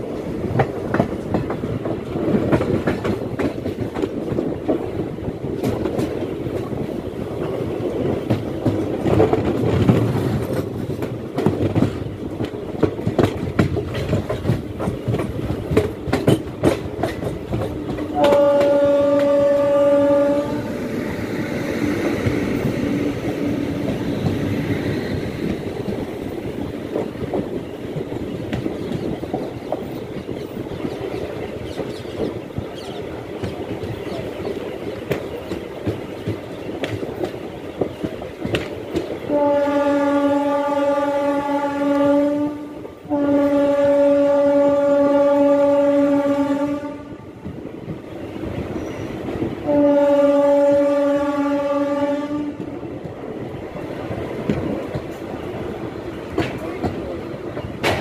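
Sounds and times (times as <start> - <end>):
wheels clicking over rail joints: 0.0 - 20.4, 22.0 - 39.5, 52.6 - 58.0
train rumbling at speed: 0.0 - 58.0
train horn: 17.5 - 21.0, 39.3 - 47.3, 49.6 - 52.7.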